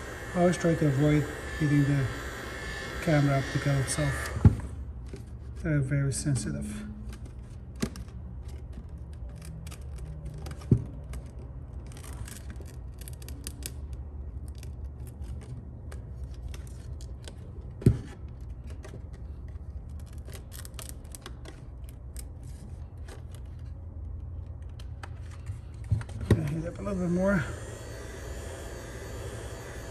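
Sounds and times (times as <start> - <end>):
steady low hum: 0.0 - 29.9
adhesive tape coming apart: 7.0 - 26.9.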